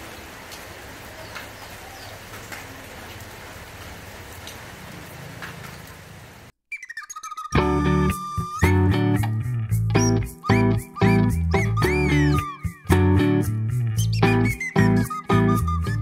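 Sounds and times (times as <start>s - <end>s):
guitar music: 7.5s - 16.0s.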